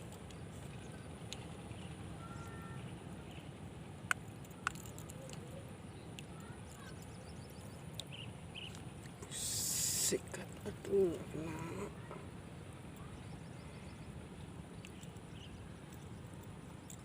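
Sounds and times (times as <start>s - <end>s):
faint short chirps: 2.2s - 2.9s.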